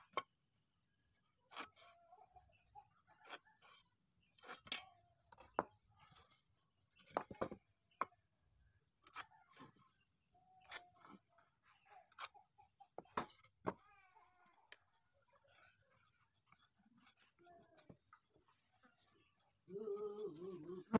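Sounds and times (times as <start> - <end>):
metal tools tapping on wooden board: 7.0 - 8.2, 13.0 - 13.8.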